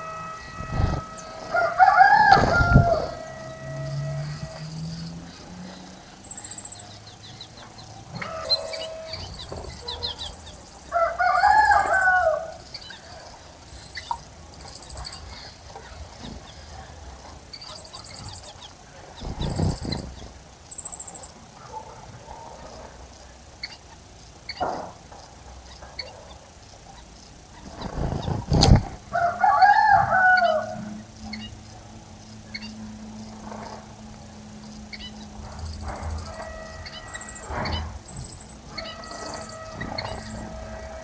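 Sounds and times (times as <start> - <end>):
high-pitched bird chirps: 0.0 - 5.4, 34.9 - 40.7
lower bird call bending in pitch: 0.0 - 5.4, 35.0 - 41.0.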